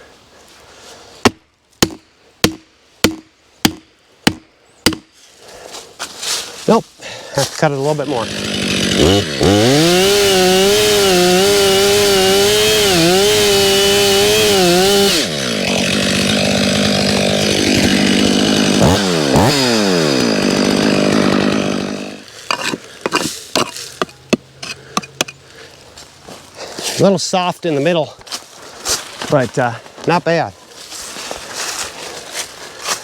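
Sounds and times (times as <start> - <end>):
chainsaw cutting tree: 7.6 - 24.2.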